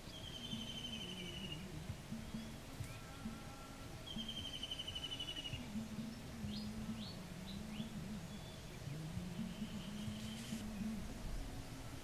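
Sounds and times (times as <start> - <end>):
bird trilling: 4.1 - 5.6.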